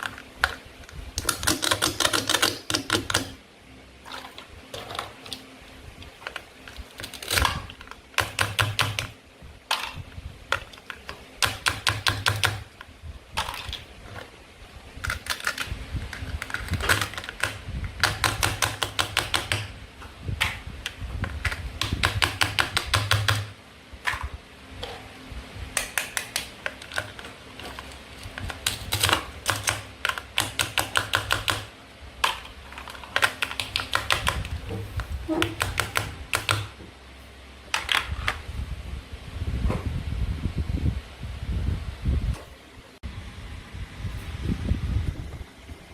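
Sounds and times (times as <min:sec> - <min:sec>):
rapid plastic clicking: 0:00.0 - 0:03.4, 0:06.1 - 0:14.2, 0:15.0 - 0:19.7, 0:20.4 - 0:24.3, 0:25.8 - 0:34.7.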